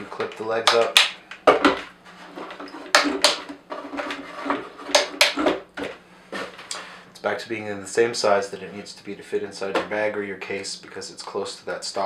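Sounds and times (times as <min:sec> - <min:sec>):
plastic clicks and knocks: 0:02.8 - 0:06.0.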